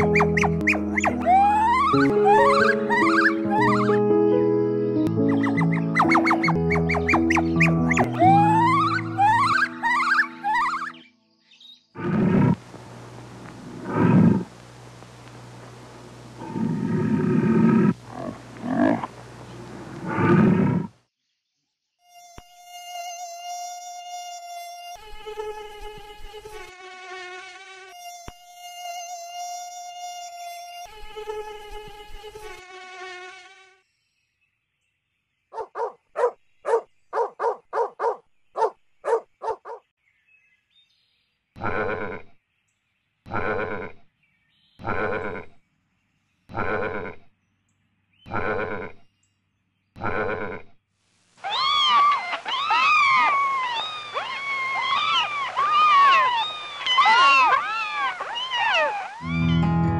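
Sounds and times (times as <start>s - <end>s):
high-pitched overlapping calls: 0.0s - 4.0s, 5.2s - 11.0s, 51.4s - 59.9s
mosquito buzzing: 0.0s - 4.0s, 5.4s - 11.0s, 12.0s - 20.9s, 22.0s - 33.8s, 52.6s - 59.9s.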